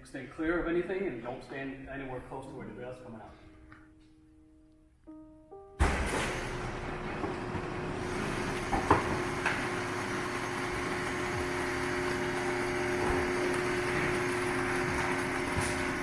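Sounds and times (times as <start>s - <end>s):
hydraulic pump motor humming: 5.8s - 16.0s.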